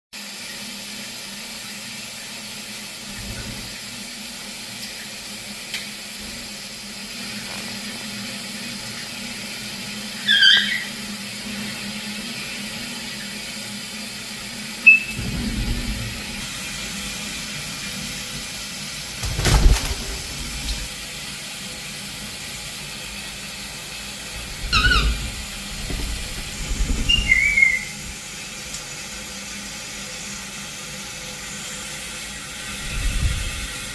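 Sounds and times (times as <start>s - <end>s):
parrot chirping: 10.2s - 10.9s, 14.8s - 15.1s, 24.4s - 26.0s, 26.6s - 28.1s.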